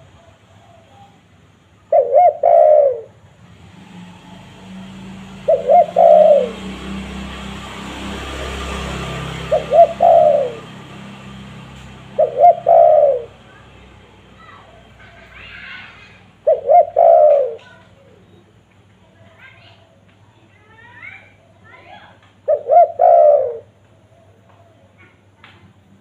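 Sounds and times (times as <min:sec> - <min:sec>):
dove cooing: 0:01.8 - 0:03.2, 0:04.6 - 0:13.8, 0:14.4 - 0:18.3, 0:22.5 - 0:25.0.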